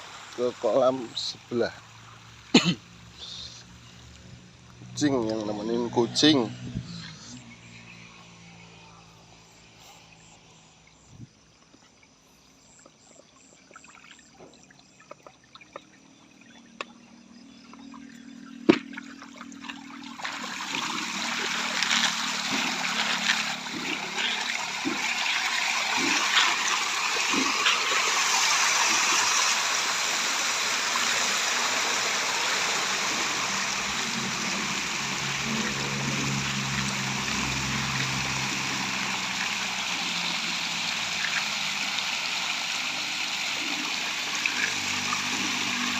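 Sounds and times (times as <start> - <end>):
fish splashing in pond water: 11.9 - 45.9.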